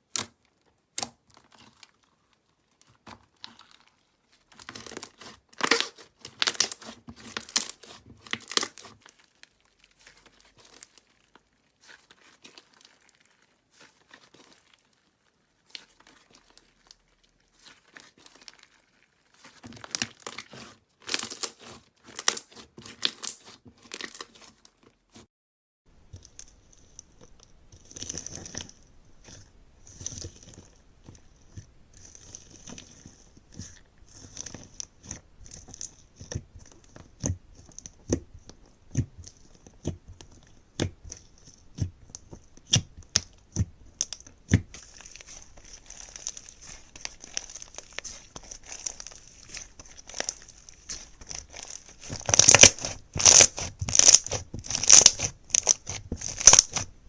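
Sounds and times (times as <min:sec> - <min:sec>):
crackling squishes: 0:00.0 - 0:25.3, 0:25.9 - 0:57.0
faint crackle: 0:08.5 - 0:20.0.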